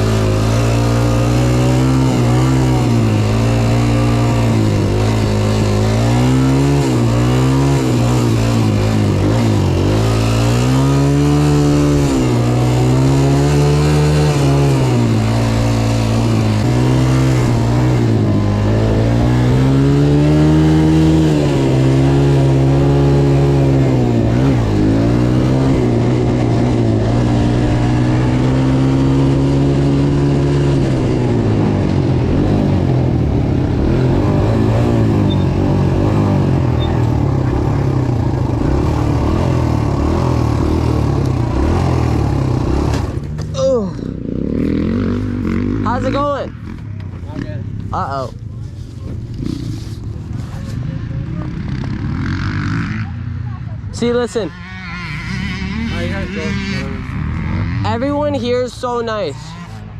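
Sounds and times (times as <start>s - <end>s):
dirt bike engine revving: 0.0s - 48.4s, 49.1s - 59.9s.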